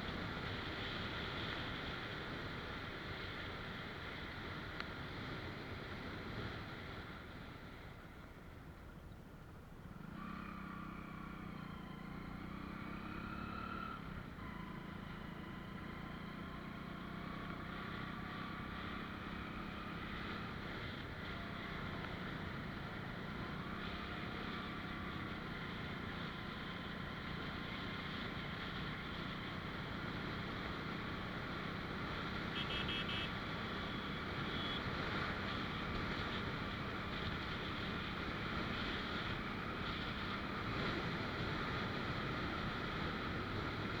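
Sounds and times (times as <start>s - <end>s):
wind and road noise: 0.0s - 44.0s
motorcycle engine running: 14.5s - 44.0s.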